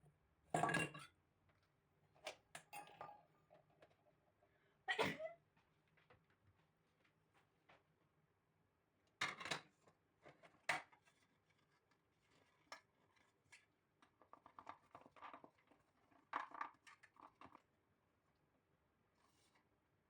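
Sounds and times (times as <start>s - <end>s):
dishes and utensils clattering: 0.6s - 1.1s, 2.6s - 3.3s.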